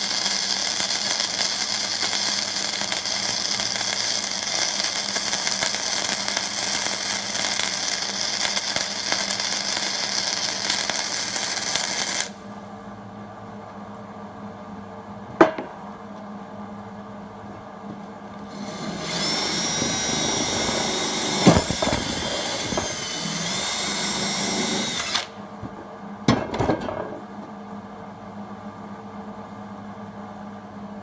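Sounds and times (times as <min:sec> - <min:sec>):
welder arc crackling: 0:00.0 - 0:12.4, 0:18.4 - 0:25.4.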